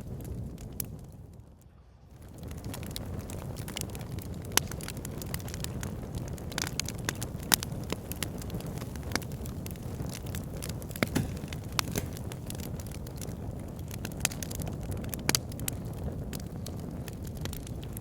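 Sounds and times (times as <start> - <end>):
wood fire crackling and popping: 0.0 - 1.5, 2.1 - 18.0
low rush of burning: 8.7 - 14.5.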